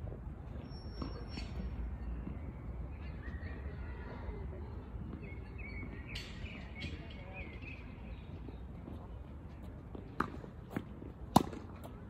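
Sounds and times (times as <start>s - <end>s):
tennis ball knock: 10.2s - 11.9s.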